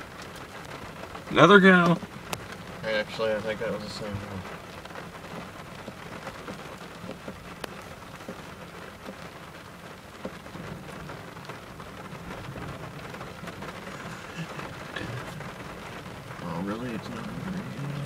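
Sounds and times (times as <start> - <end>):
raindrop ticks: 0.0 - 18.0
steady rain hiss: 0.0 - 18.0.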